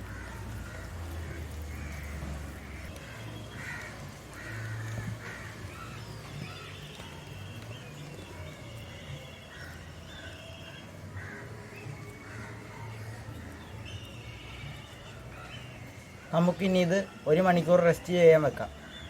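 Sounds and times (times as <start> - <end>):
crows cawing: 0.0 - 6.6, 9.4 - 13.8.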